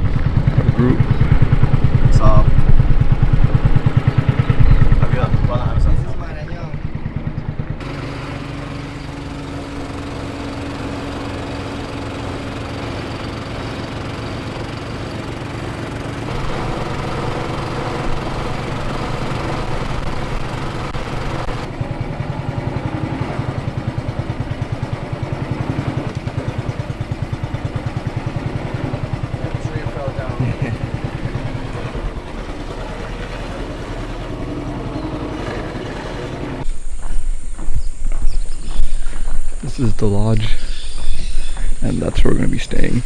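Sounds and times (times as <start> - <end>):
outboard motor humming: 0.0 - 43.0.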